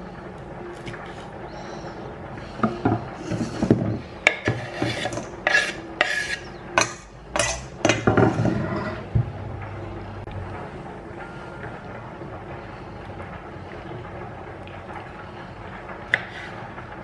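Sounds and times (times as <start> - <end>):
rubbing and scraping strokes: 3.2 - 6.6, 16.1 - 16.7.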